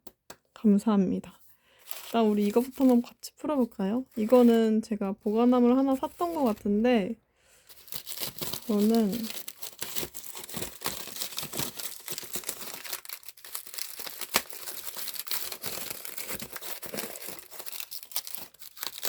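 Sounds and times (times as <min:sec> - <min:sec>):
packaging crinkling: 0:01.8 - 0:03.1, 0:05.2 - 0:06.8, 0:07.6 - 0:19.0
tape tearing: 0:07.8 - 0:19.0.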